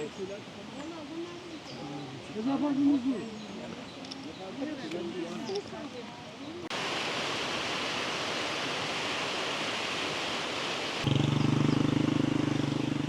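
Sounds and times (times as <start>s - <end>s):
river water rushing: 6.7s - 13.0s.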